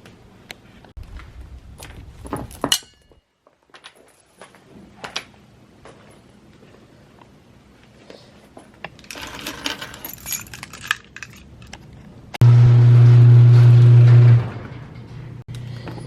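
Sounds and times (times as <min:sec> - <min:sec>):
metal jangling and clinking: 0:09.0 - 0:11.8
loud low hum: 0:12.4 - 0:15.4.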